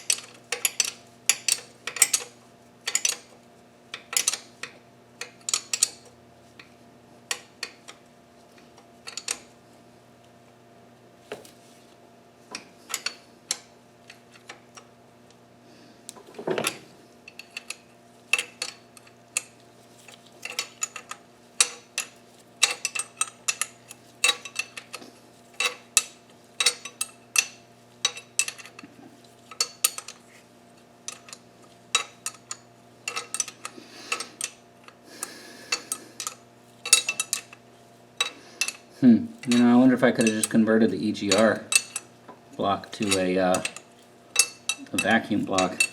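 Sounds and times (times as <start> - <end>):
steady low hum: 0.0 - 45.9
metal tools clinking: 20.4 - 25.0, 31.1 - 34.6, 35.7 - 37.6, 38.2 - 38.8, 39.4 - 42.1, 42.8 - 45.9.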